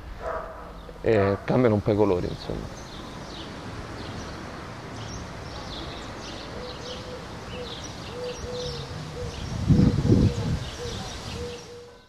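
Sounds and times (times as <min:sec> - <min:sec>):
low outdoor rumble: 0:00.0 - 0:06.5
small birds chirping: 0:00.3 - 0:12.0.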